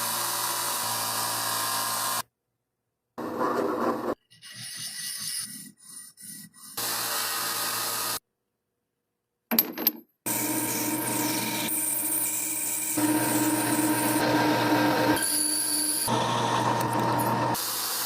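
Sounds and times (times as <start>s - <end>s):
power tool running: 0.0s - 2.2s, 6.8s - 8.2s, 10.3s - 18.0s
rubbing or filing strokes: 4.3s - 6.8s.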